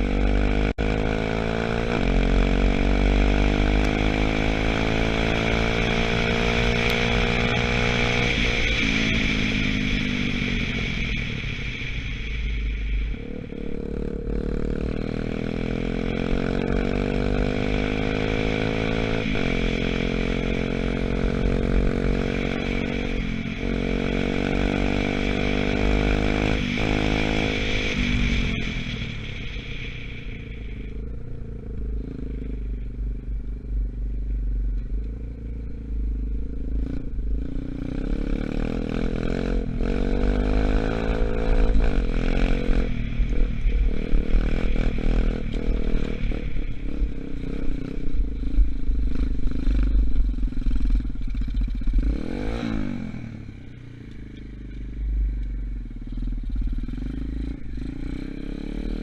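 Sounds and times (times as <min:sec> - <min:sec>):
dirt bike engine accelerating: 0:00.0 - 0:59.0.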